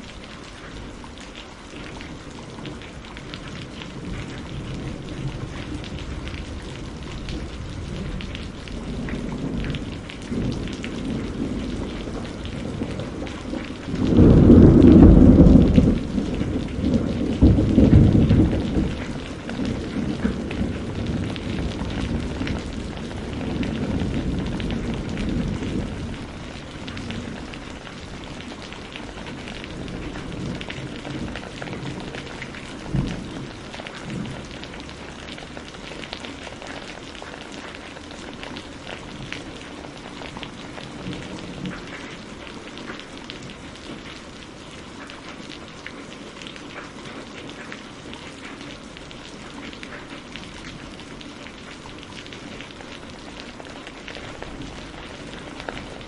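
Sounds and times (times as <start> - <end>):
steady rain falling: 0.0 - 56.0
low roll of thunder: 2.5 - 35.7.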